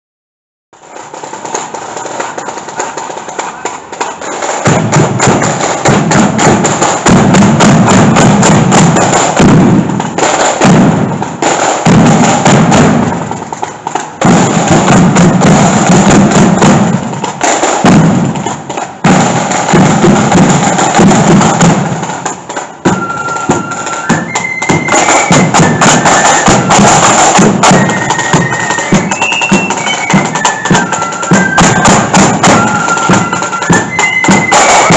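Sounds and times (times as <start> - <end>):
marching flute band: 0.8 - 34.9
snare drums: 0.8 - 34.9
heavy bass drum beat: 1.9 - 23.0
high flute melody: 22.8 - 34.9.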